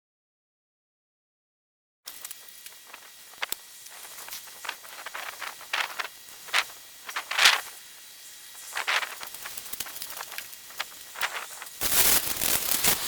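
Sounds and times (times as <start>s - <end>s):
rustling and crackling: 2.1s - 7.8s, 8.6s - 13.0s
faint steady hiss: 2.1s - 13.0s.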